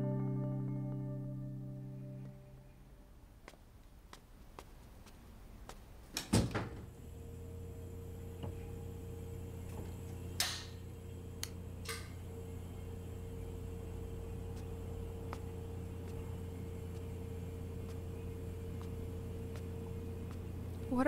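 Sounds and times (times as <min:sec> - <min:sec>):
steady low hum: 0:00.0 - 0:21.0
door shutting: 0:06.2 - 0:07.0.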